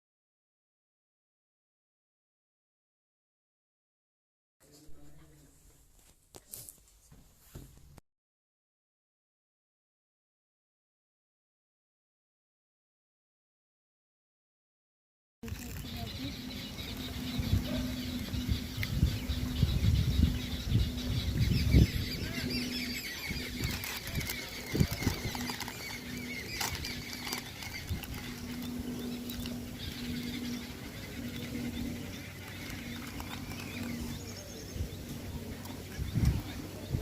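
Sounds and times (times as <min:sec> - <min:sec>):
low hum: 0:15.4 - 0:37.0
small birds chirping: 0:15.4 - 0:37.0.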